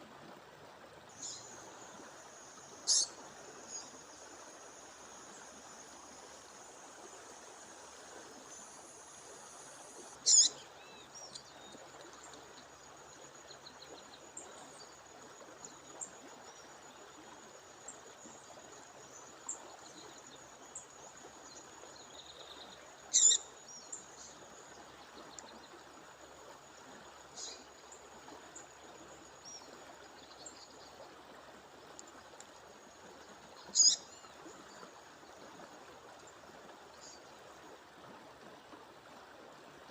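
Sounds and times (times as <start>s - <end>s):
songbird high sharp calls: 2.8s - 4.0s, 10.2s - 11.4s, 23.1s - 23.5s, 33.7s - 34.1s.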